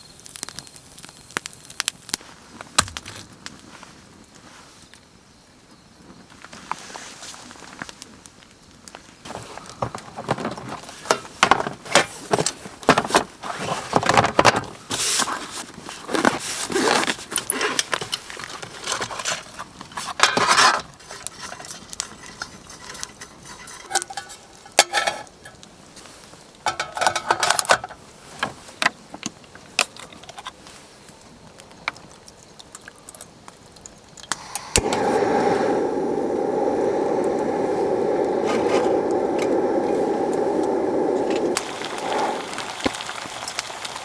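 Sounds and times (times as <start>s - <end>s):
metal cookware clattering: 20.3s - 25.3s.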